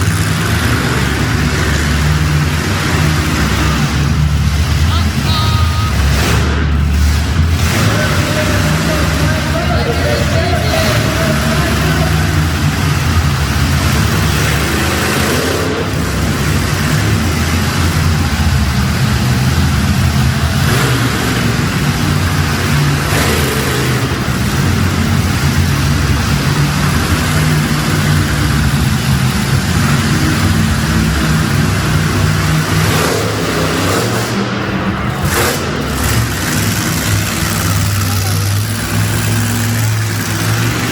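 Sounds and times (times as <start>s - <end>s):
truck engine revving loud: 0.0s - 40.9s.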